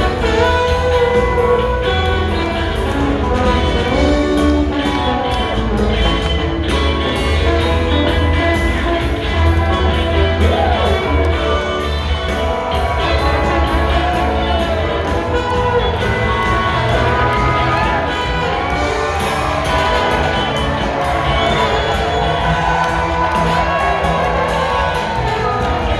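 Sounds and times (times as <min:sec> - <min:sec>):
rock band playing live: 0:00.0 - 0:25.9.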